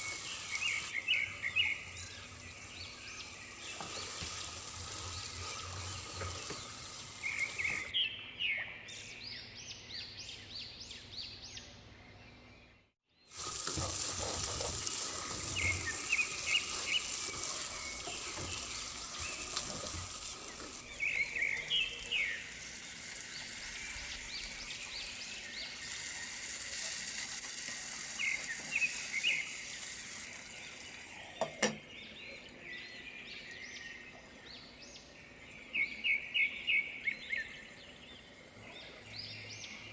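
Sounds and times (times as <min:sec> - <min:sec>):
food sizzling in oil: 0:00.0 - 0:07.9, 0:13.3 - 0:31.9
birds chirping: 0:00.0 - 0:39.9.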